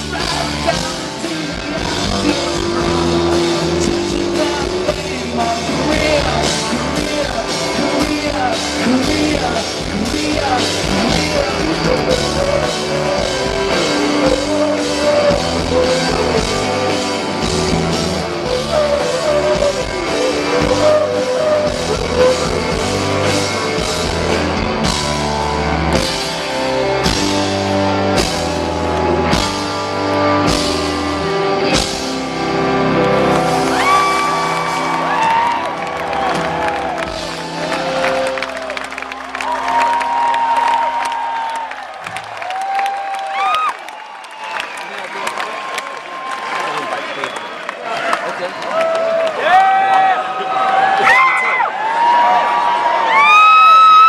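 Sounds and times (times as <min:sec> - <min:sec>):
person singing: 0:00.0 - 0:26.1
bass guitar: 0:00.0 - 0:40.9
drum kit: 0:00.0 - 0:41.0
electric guitars: 0:00.0 - 0:43.4.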